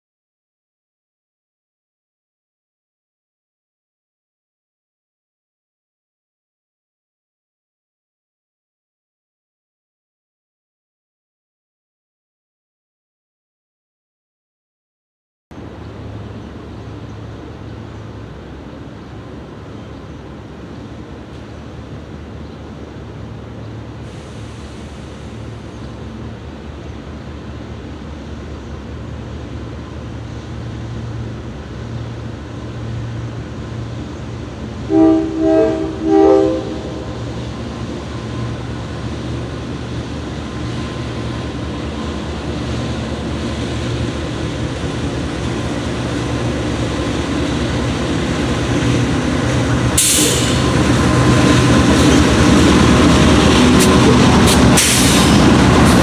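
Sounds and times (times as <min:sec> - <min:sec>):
locomotive engine drone: 0:15.5 - 0:56.0
sharp hiss: 0:23.9 - 0:25.6, 0:50.0 - 0:50.8, 0:53.8 - 0:56.0
train horn blasts: 0:34.8 - 0:37.4.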